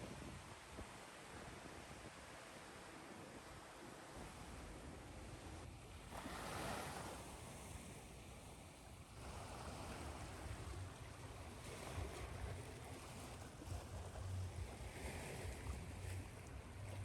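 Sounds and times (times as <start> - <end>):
ocean waves washing ashore: 6.1 - 17.0.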